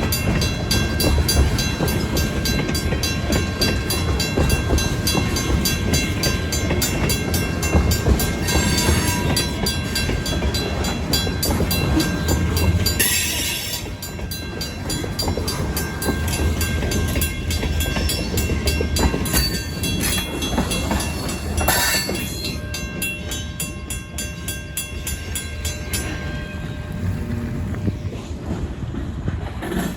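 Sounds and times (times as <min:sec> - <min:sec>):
mechanical crossing bell ringing: 0:00.0 - 0:27.4
train cars rumbling over crossing: 0:00.0 - 0:29.9.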